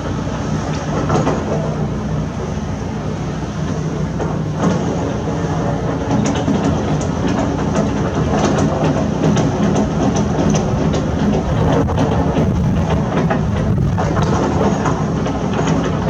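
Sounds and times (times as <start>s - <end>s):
construction machinery engine running: 9.8s - 16.0s.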